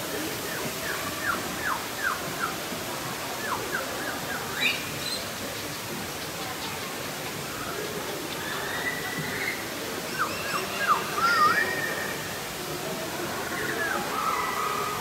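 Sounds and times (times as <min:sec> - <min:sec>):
small birds chirping: 0:03.4 - 0:11.6.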